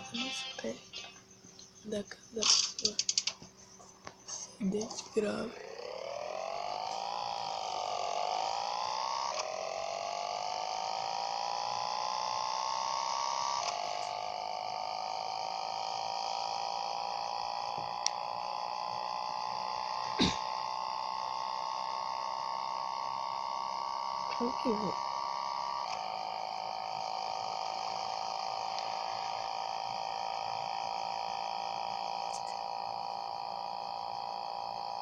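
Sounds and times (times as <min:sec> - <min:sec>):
motorcycle engine accelerating: 0:05.1 - 0:22.2.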